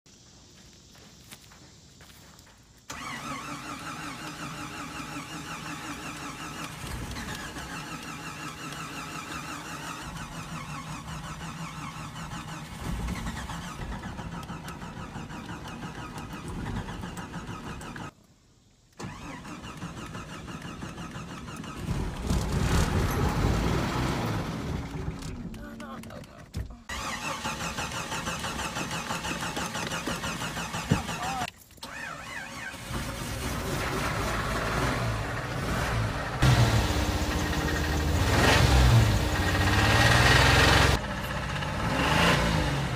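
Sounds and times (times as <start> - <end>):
engine firing: 2.9 - 18.1, 19.0 - 25.6, 26.9 - 42.9
car starter cranking: 2.9 - 18.2, 18.9 - 35.5.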